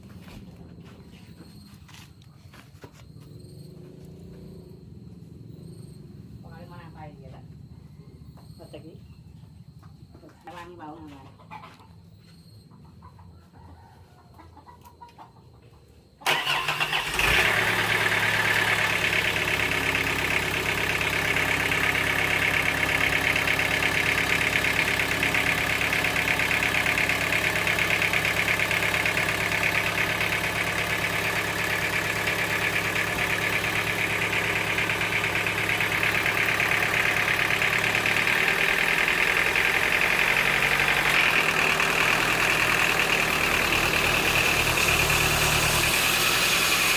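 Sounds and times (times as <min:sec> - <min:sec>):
sawmill engine running: 0:16.3 - 0:46.9.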